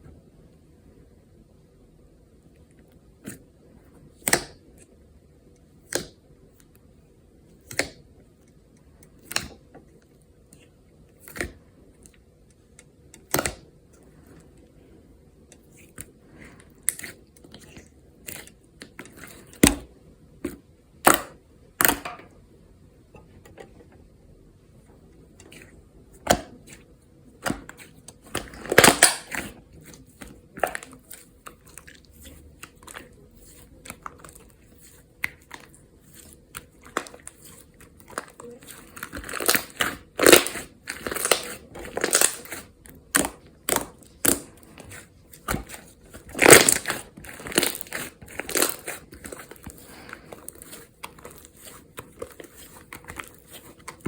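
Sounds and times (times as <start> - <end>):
slime crackling pops: 39.2 - 44.5, 46.3 - 49.0.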